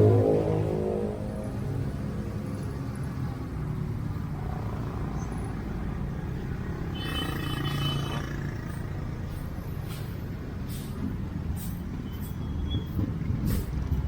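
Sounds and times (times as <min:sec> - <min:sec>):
motor vehicles rumbling: 0:00.0 - 0:14.0
brakes squealing: 0:06.7 - 0:14.0.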